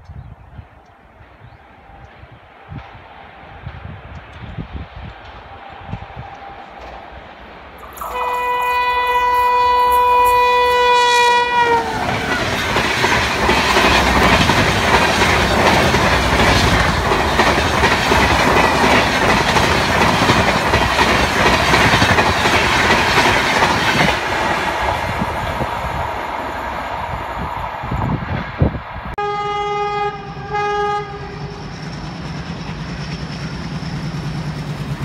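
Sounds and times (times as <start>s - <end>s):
train coaches rushing by: 0.4s - 35.0s
locomotive air horn blast: 7.8s - 12.2s, 29.2s - 31.7s.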